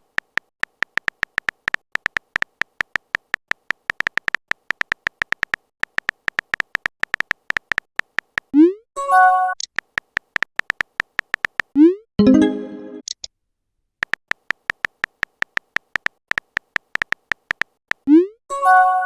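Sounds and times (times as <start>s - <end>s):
phone keyboard typing clicks: 0.0s - 8.5s, 9.6s - 11.8s, 14.0s - 18.1s.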